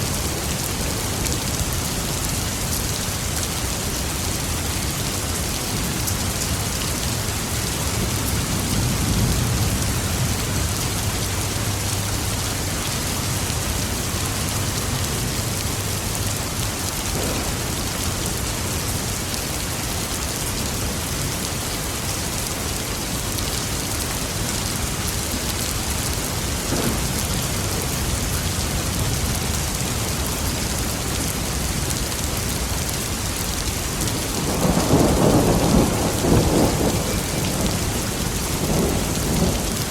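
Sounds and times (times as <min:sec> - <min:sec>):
steady rain falling: 0:00.0 - 0:39.9
distant thunder rumble: 0:17.1 - 0:19.0, 0:26.4 - 0:28.9, 0:34.4 - 0:39.9.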